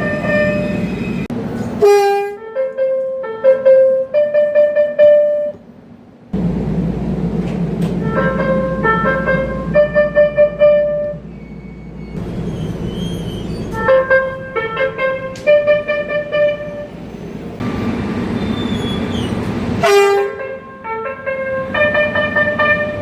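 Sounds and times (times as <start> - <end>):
train electronic horn melody: 0.0 - 1.2, 1.8 - 5.6, 8.0 - 11.4, 13.7 - 17.0, 19.8 - 23.0
train running rumble: 0.0 - 23.0.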